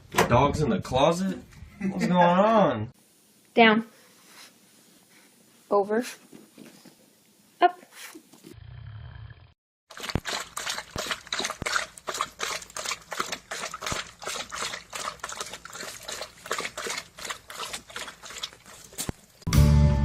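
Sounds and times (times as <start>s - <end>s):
animal lapping water: 9.9s - 19.5s.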